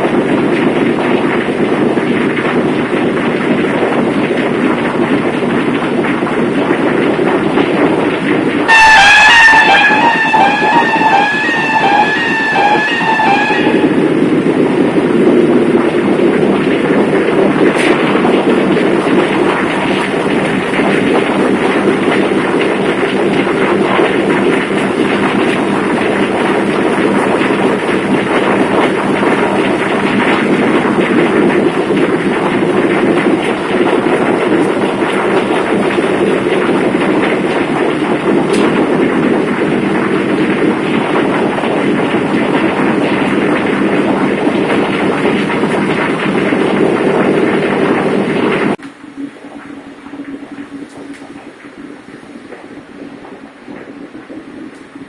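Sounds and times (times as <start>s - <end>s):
marine diesel engines droning: 5.9s - 51.4s
faint steady hum: 48.7s - 55.0s.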